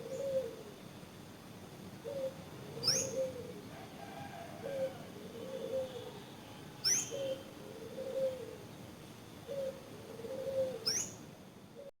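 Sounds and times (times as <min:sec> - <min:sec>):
dove cooing: 0:00.0 - 0:00.8, 0:02.0 - 0:06.2, 0:06.8 - 0:08.7, 0:09.4 - 0:11.1.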